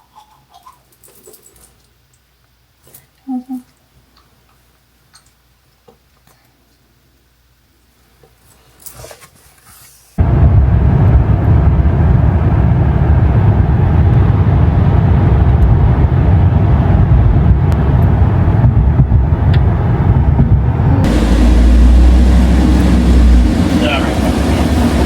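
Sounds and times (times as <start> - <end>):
car road and engine rumble: 10.2 - 25.0
steady low hum: 10.2 - 25.0.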